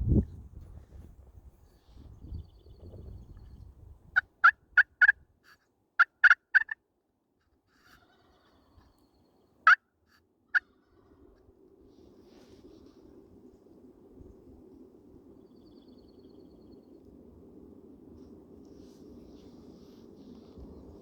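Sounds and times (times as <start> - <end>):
turkey yelping: 6.0 - 6.8.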